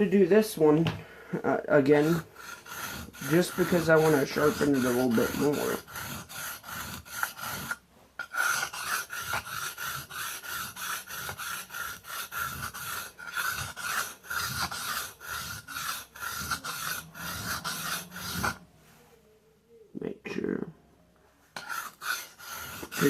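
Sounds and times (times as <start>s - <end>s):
knife scraping on whetstone: 1.9s - 18.6s, 21.6s - 23.0s.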